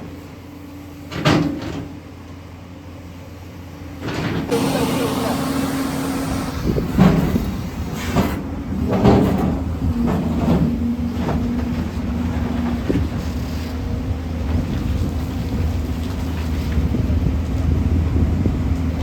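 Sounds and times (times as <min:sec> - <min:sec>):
excavator engine running: 0:03.4 - 0:19.0
hydraulic whine: 0:04.4 - 0:13.7.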